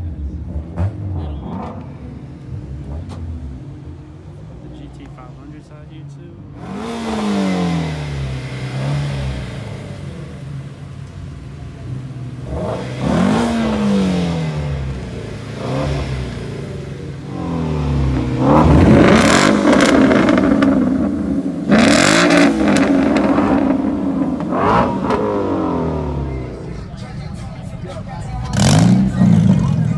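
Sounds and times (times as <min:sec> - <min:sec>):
car engine idling and revving: 0:00.0 - 0:29.9.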